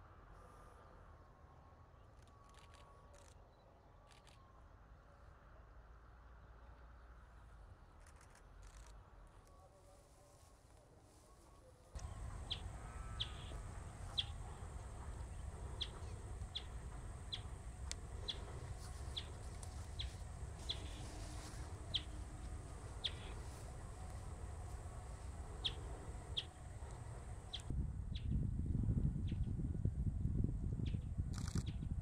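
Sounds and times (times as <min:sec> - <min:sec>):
steady low rumble: 0:12.0 - 0:32.0.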